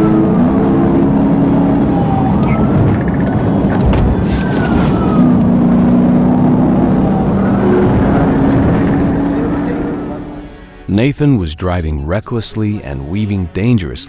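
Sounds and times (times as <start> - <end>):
police siren wailing: 0.0 - 11.0
road and engine noise: 0.0 - 14.0.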